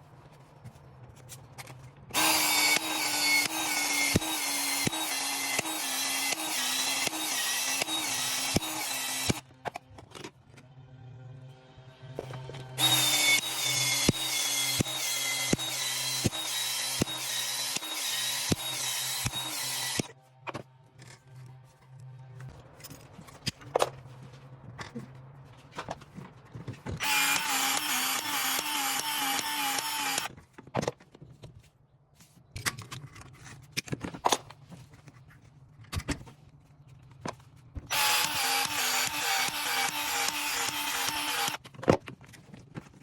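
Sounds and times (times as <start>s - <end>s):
power tool running: 2.2s - 9.4s, 12.8s - 20.1s, 27.0s - 30.3s, 37.9s - 41.6s.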